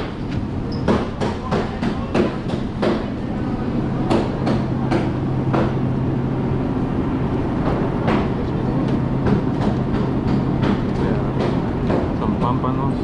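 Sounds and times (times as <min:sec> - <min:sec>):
steady low hum: 0:00.0 - 0:13.0
knocks and clatter: 0:07.4 - 0:12.6.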